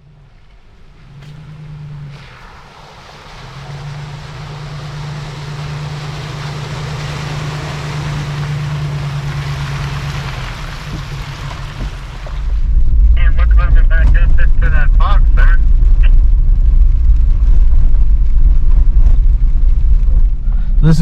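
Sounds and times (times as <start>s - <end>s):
off-road vehicle engine running: 0.0s - 21.0s
water rushing and splashing: 0.3s - 16.4s.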